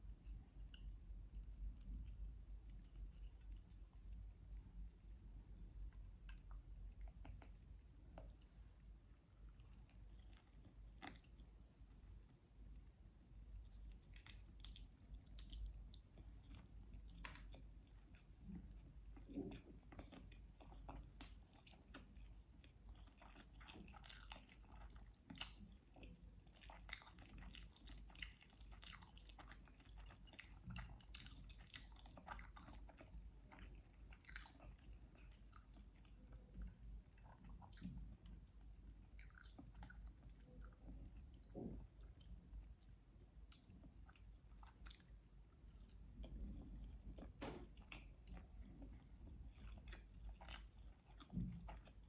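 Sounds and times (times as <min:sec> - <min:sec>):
close-miked chewing and biting: 0:13.8 - 0:52.0.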